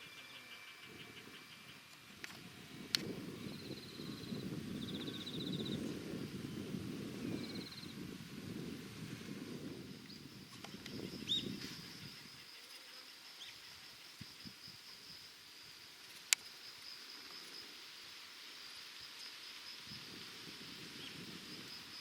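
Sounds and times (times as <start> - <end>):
insects droning: 0.0 - 22.0
wind rumble on microphone: 0.8 - 12.5, 19.7 - 22.0.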